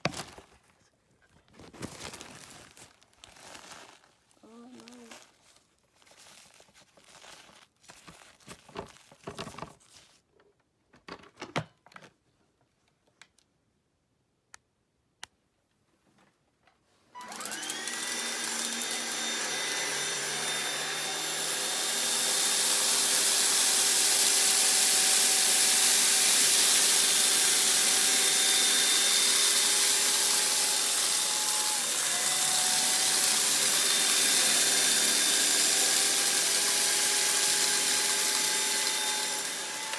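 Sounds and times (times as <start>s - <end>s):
vacuum cleaner motor running: 17.2s - 39.9s.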